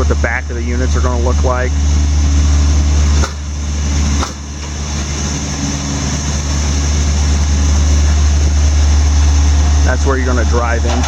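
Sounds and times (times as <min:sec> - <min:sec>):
vehicle engine drone and road noise: 0:00.0 - 0:11.0.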